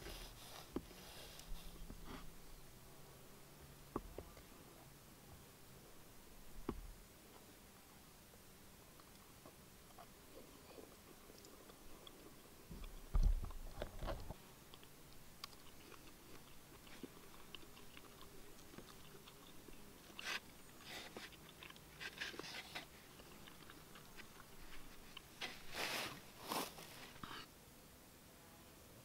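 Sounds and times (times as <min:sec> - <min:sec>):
person chewing meat: 0:09.9 - 0:13.6, 0:14.7 - 0:25.7.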